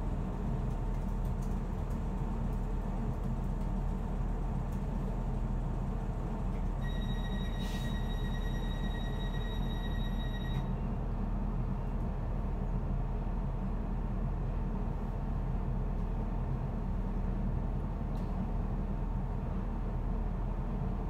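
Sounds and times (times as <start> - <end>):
train low rumble and hum: 0.0 - 21.0
brief hiss: 7.6 - 8.0.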